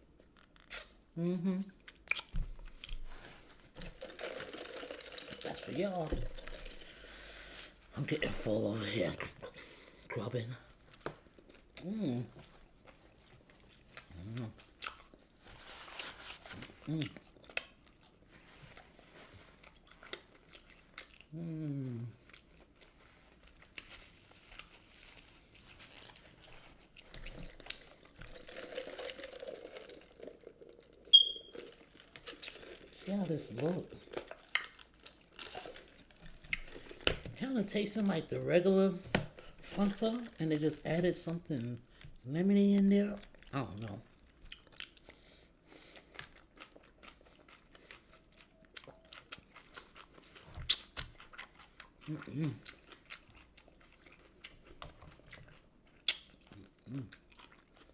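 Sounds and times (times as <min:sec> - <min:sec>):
person eating crunches: 0:00.2 - 0:10.0, 0:10.6 - 0:37.4, 0:43.2 - 0:57.9
food packaging crinkling: 0:02.2 - 0:07.8, 0:14.7 - 0:21.1, 0:22.4 - 0:45.2.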